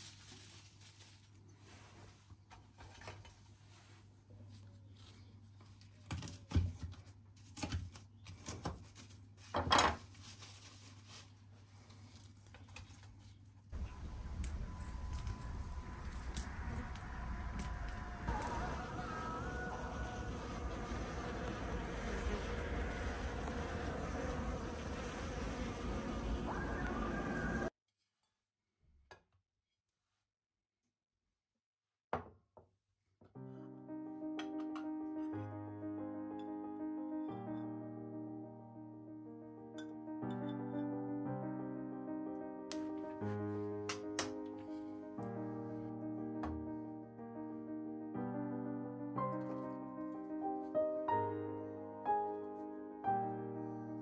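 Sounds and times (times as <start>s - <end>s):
low steady hum: 13.8s - 27.7s
steady noisy background: 13.8s - 27.7s.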